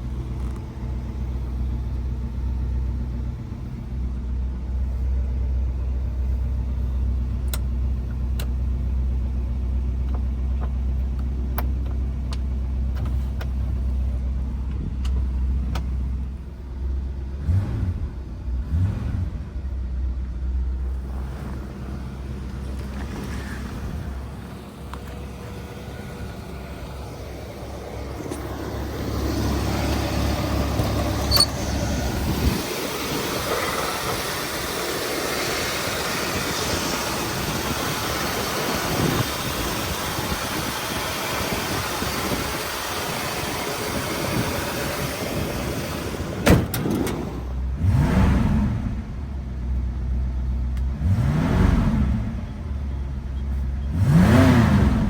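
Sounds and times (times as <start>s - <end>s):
car engine revving: 17.3s - 19.8s, 20.7s - 49.5s, 50.8s - 52.8s, 53.8s - 55.0s.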